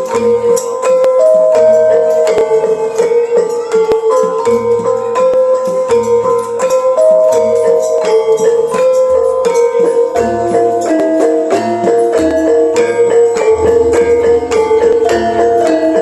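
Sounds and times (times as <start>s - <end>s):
jingling percussion: 0.0s - 16.0s
struck metallophone notes: 0.0s - 16.0s
low drum beats: 11.6s - 16.0s.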